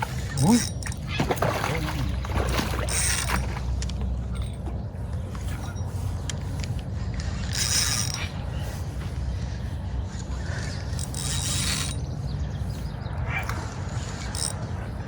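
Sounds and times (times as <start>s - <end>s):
fishing reel ratcheting: 0.1s - 1.1s, 2.9s - 4.6s, 6.2s - 9.2s, 10.2s - 12.1s, 13.4s - 14.7s.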